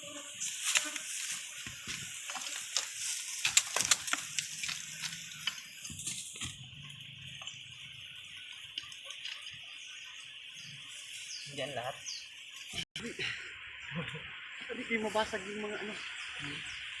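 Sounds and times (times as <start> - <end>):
night insects chirring: 0.0 - 17.0
dense crackling and snapping: 0.4 - 7.1, 8.4 - 9.7.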